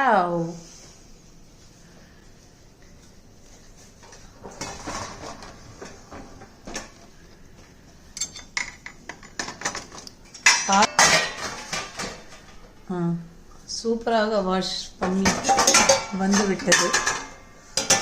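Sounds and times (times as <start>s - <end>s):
dishes and cutlery clattering: 4.1s - 7.0s, 8.1s - 12.6s, 15.2s - 18.0s.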